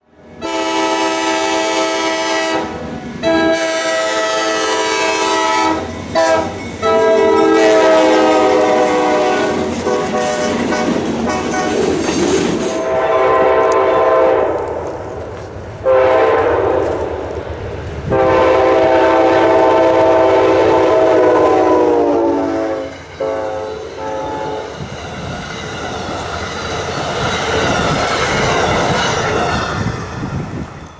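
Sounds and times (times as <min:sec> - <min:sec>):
train air horn blasts: 0:00.4 - 0:11.8, 0:12.8 - 0:14.9, 0:15.8 - 0:17.3, 0:18.1 - 0:24.8
train wheels clattering on rails: 0:04.5 - 0:19.3, 0:23.0 - 0:30.9.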